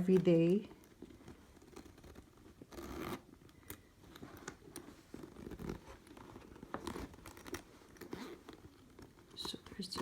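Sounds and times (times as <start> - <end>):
handbag rustling: 0.0 - 10.0.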